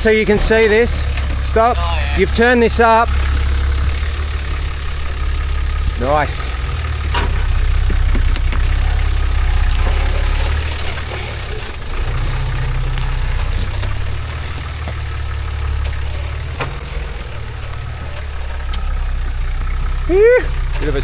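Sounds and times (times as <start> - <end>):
sharp clicks and knocks: 0.0 - 20.0
truck engine running at low revs: 0.0 - 21.0.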